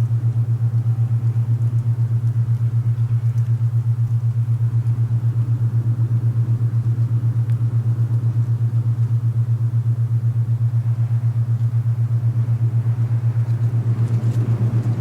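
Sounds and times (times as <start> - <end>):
throbbing low hum: 0.0 - 15.0
faint wind rush: 12.2 - 15.0.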